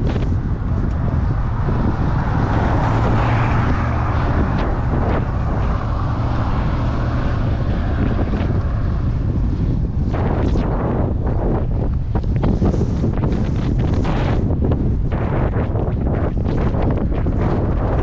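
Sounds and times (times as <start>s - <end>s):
low rumble of traffic: 0.0s - 18.0s
wind buffeting microphone: 0.0s - 18.0s.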